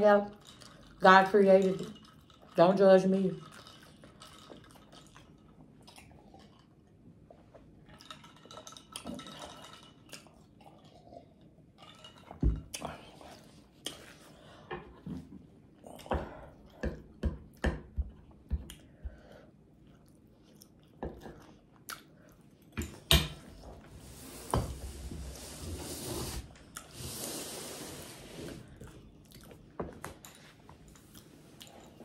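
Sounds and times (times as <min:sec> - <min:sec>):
wet chewing smacks: 0:19.8 - 0:22.6.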